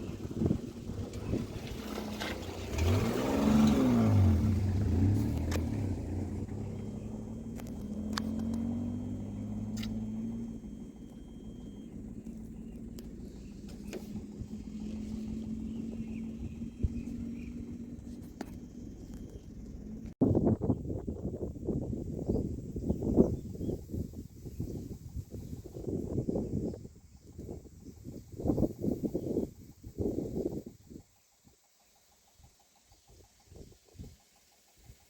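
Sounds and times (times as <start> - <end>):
vehicle engine passing by: 0.0 - 20.2
sharp clicks: 9.7 - 10.1.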